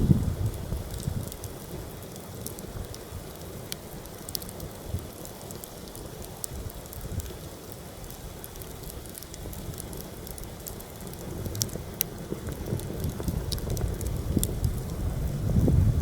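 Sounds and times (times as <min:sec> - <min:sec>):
wind buffeting microphone: 0:00.0 - 0:03.6, 0:09.1 - 0:16.0
campfire crackling and popping: 0:00.0 - 0:16.0.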